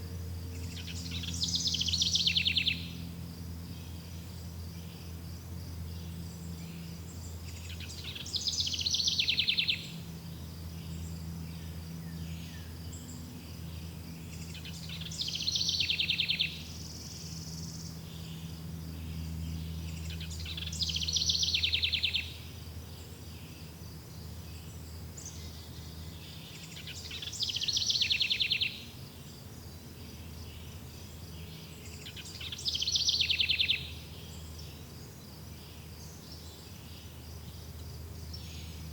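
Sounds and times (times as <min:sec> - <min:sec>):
low steady rumble: 0:00.0 - 0:28.0
insects chirring: 0:00.0 - 0:38.9
songbird song with buzzy trill: 0:00.0 - 0:38.9.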